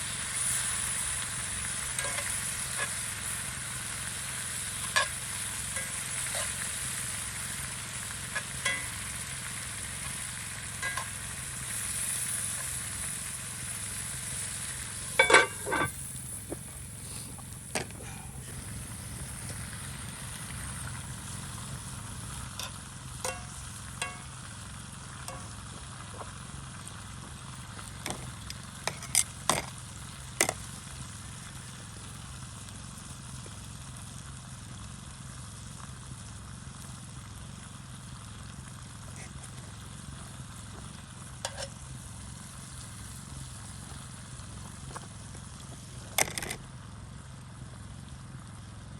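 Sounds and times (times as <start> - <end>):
meat sizzling over a fire: 0.0 - 48.9
utensil clacking against cookware: 8.3 - 9.0, 10.8 - 11.2, 15.2 - 16.0, 22.6 - 24.3, 28.9 - 29.7.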